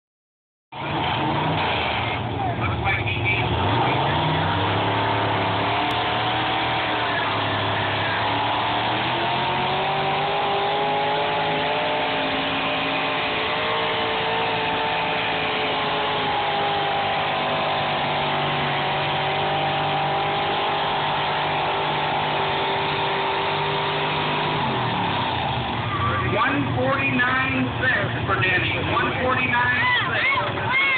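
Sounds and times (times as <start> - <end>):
tractor engine running hard: 0.7 - 30.9.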